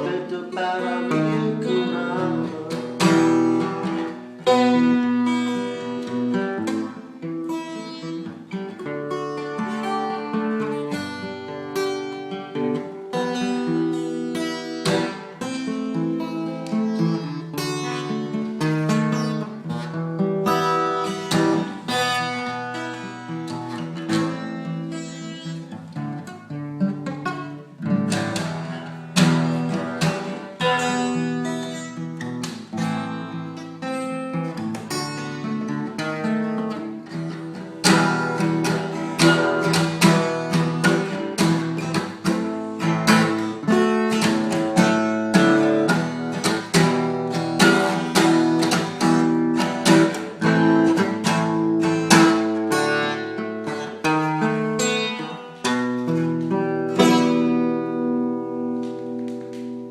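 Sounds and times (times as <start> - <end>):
acoustic guitar music: 0.0 - 59.9.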